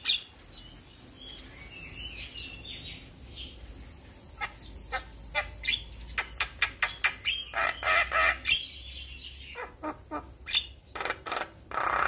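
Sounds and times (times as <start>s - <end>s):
bird harsh rasping call: 4.4s - 8.8s, 9.4s - 12.0s.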